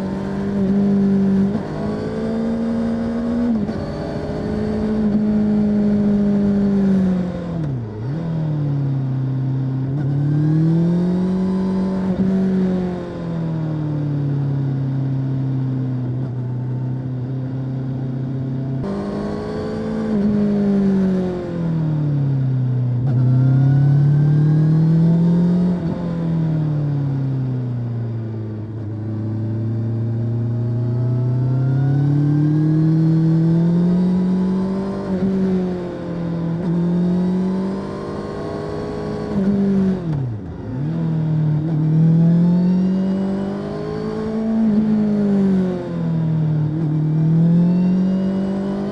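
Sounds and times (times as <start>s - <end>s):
motorcycle engine revving: 0.0s - 13.7s, 17.8s - 27.4s, 28.2s - 48.9s.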